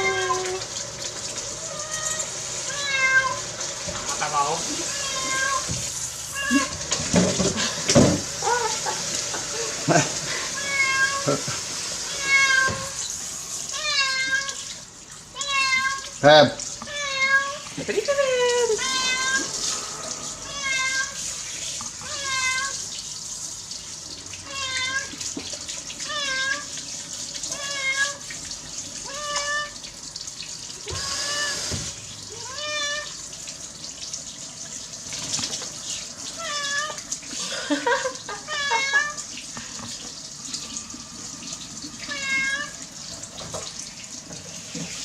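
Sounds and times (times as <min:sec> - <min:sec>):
cat meowing: 0:00.0 - 0:00.6, 0:01.6 - 0:03.5, 0:04.8 - 0:06.9, 0:10.5 - 0:11.4, 0:12.1 - 0:13.1, 0:13.7 - 0:14.7, 0:15.3 - 0:16.2, 0:16.8 - 0:17.7, 0:18.7 - 0:19.6, 0:20.4 - 0:21.2, 0:22.0 - 0:22.8, 0:24.4 - 0:25.2, 0:27.5 - 0:28.2, 0:29.0 - 0:29.8, 0:30.9 - 0:33.2, 0:36.4 - 0:37.0, 0:38.4 - 0:39.2, 0:42.0 - 0:42.8
running water hissing: 0:00.0 - 0:45.0.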